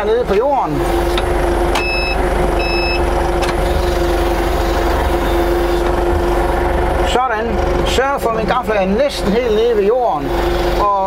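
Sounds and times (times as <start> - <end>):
forklift humming: 0.0 - 11.0
reversing alarm beeps: 1.8 - 3.1.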